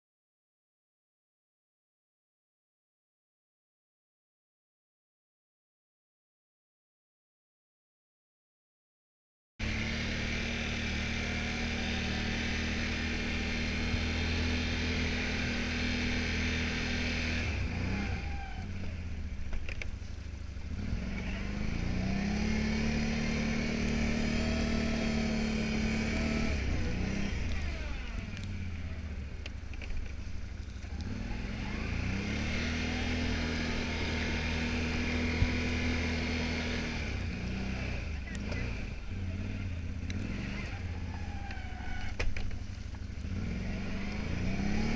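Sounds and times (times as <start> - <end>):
atv engine running: 9.6 - 44.9.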